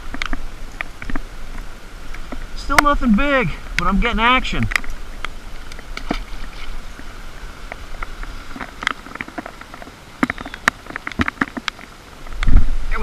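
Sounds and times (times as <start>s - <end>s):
raindrops pattering: 0.0s - 13.0s.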